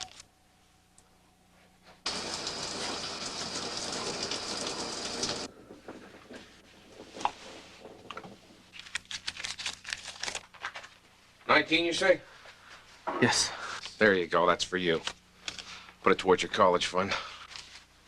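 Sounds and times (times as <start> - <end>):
shower water running: 2.0 - 7.7
rustling: 5.5 - 11.4.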